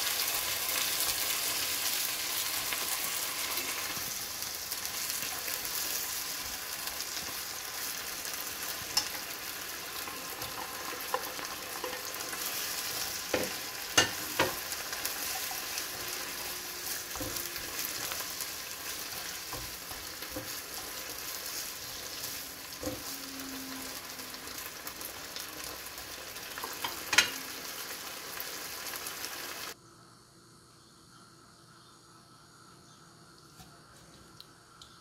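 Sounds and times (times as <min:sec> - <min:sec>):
food sizzling in a frying pan: 0:00.0 - 0:29.8
chopsticks tapping pan: 0:13.2 - 0:14.6.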